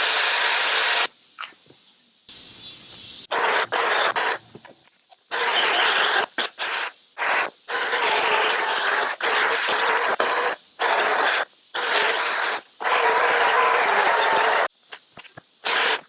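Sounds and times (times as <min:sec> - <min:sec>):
chainsaw cutting wood: 0:00.0 - 0:01.1, 0:15.6 - 0:16.0.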